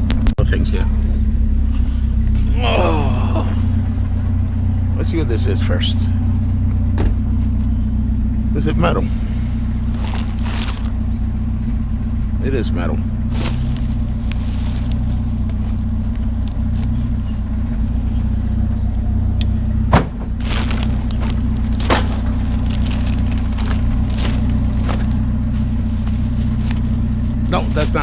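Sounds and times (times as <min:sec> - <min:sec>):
vehicle engine idling: 0:00.0 - 0:28.0
knocks and clatters: 0:19.9 - 0:25.2.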